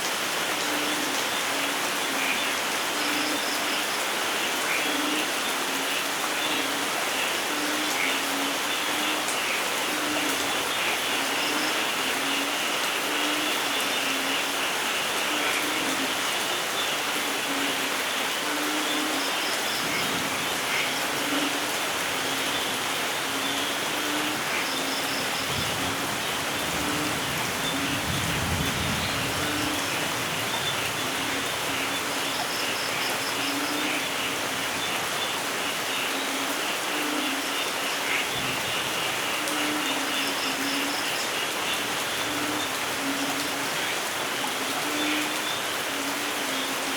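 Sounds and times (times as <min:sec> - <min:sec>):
rain falling in forest: 0:00.0 - 0:46.9
distant thunder rumble: 0:25.5 - 0:31.3.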